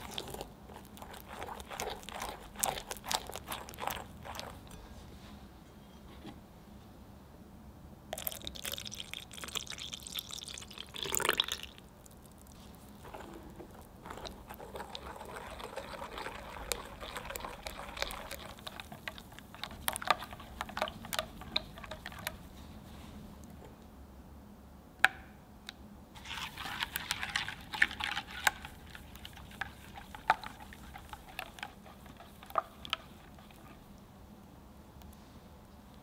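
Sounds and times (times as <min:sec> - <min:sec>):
milk pouring into glass bowl: 0:00.0 - 0:04.8, 0:08.2 - 0:12.2, 0:13.0 - 0:22.4, 0:26.2 - 0:33.8
spatula stirring custard: 0:00.0 - 0:04.8, 0:10.5 - 0:22.7, 0:26.2 - 0:34.0.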